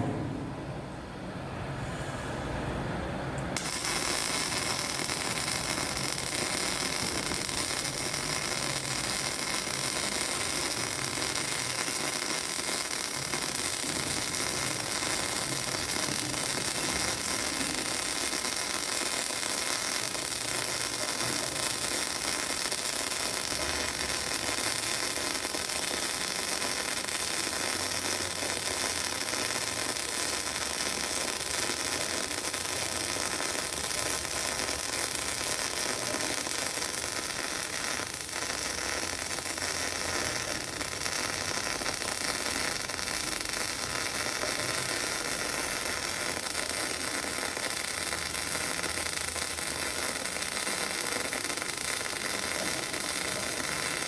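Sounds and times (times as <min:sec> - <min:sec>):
welding arc crackling: 0:03.6 - 0:54.0.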